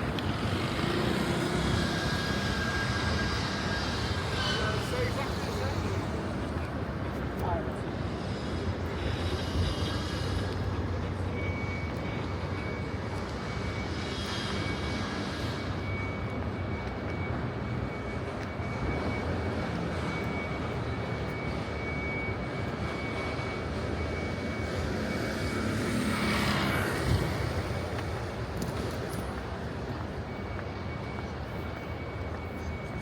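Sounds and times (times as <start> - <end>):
low rumble of city noise: 0.0 - 33.0.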